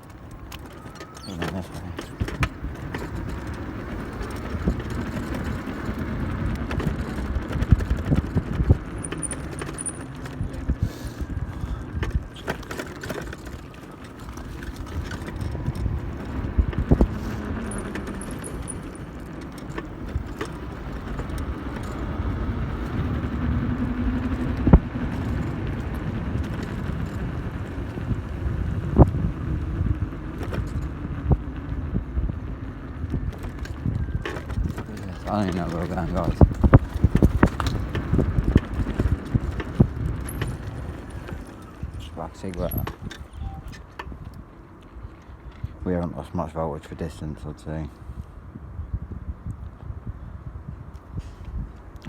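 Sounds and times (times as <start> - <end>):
bike knocks and rattles: 0.0 - 29.2, 33.0 - 44.4
wind and road noise: 0.0 - 52.0.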